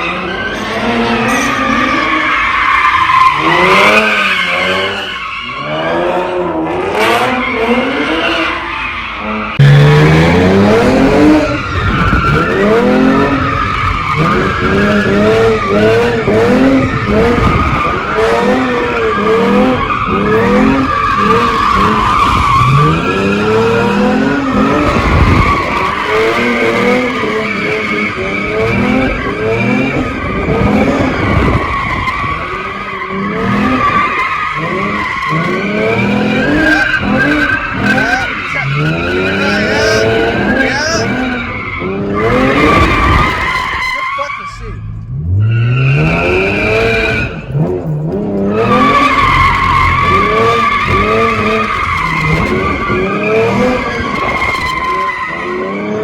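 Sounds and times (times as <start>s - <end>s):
car engine revving: 0.0s - 56.0s
tyre squeal: 31.0s - 47.5s.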